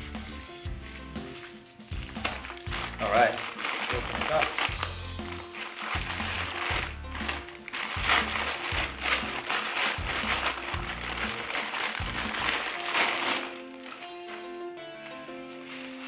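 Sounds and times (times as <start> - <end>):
background music: 0.0 - 16.0
plastic packaging crinkling: 0.7 - 16.0.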